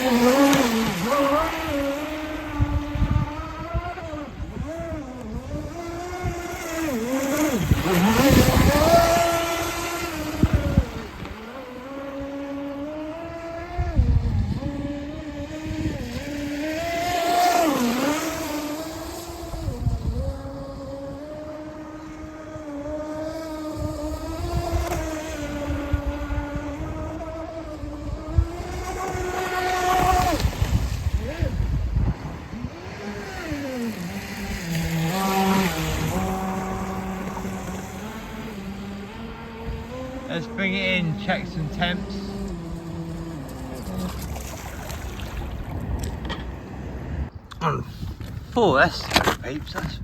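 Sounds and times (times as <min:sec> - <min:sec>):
water rushing and spray: 0:00.0 - 0:13.5, 0:28.6 - 0:46.8
speedboat motor whining: 0:00.0 - 0:50.0.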